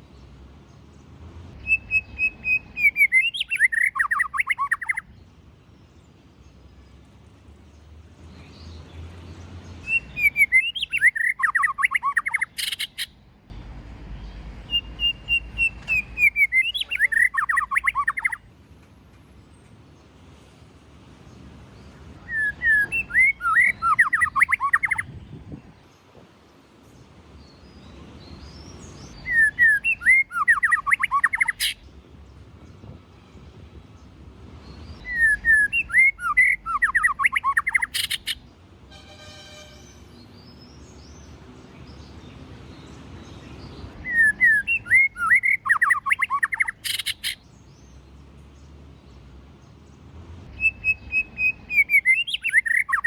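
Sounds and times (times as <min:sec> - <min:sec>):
bird singing whistled notes: 0:01.6 - 0:05.2, 0:09.7 - 0:13.2, 0:14.6 - 0:18.4, 0:22.2 - 0:25.7, 0:27.4 - 0:31.8, 0:34.6 - 0:38.4, 0:42.7 - 0:47.8, 0:50.5 - 0:53.0.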